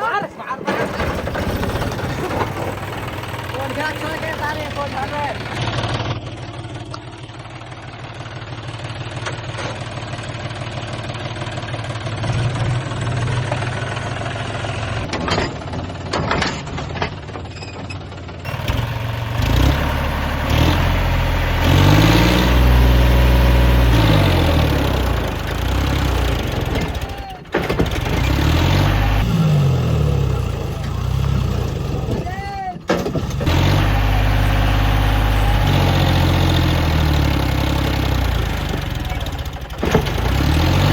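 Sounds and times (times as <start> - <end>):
tractor diesel engine running: 0.0 - 40.9
engine revving up and down: 1.0 - 6.1, 18.5 - 40.9
knocks: 26.6 - 29.0.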